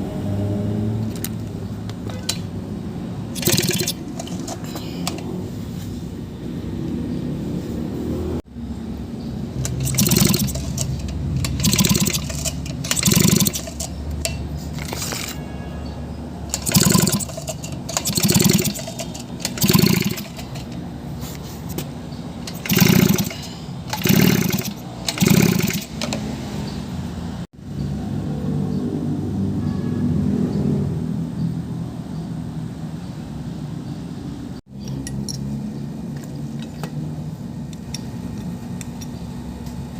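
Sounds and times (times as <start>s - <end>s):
recoil starter pulls: 3.4s - 5.3s, 9.6s - 15.4s, 16.5s - 20.8s, 21.6s - 26.3s.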